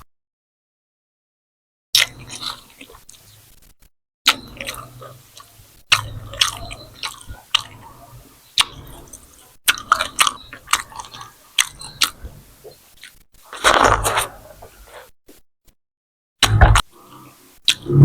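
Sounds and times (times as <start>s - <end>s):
wet chewing and smacking: 2.0s - 3.3s, 4.3s - 15.1s
smear of noise: 16.4s - 18.0s.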